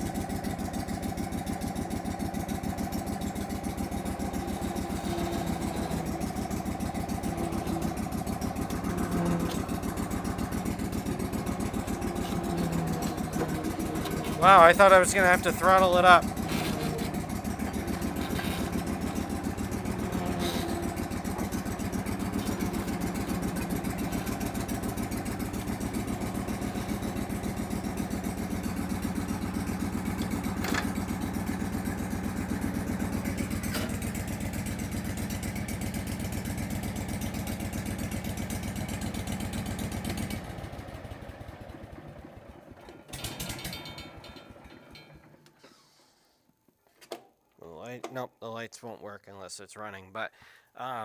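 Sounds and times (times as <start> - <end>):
blower engine running: 0.0 - 45.6
short clatter: 42.8 - 46.1.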